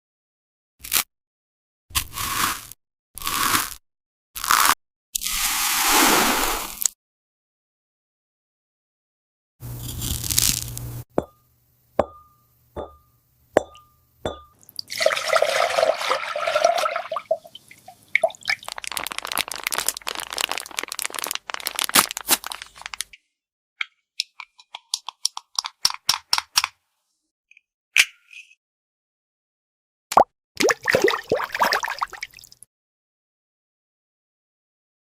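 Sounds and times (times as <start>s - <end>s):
rustling and rapid clicking: 18.5s - 23.2s
plastic toy pieces clicking: 24.2s - 26.8s.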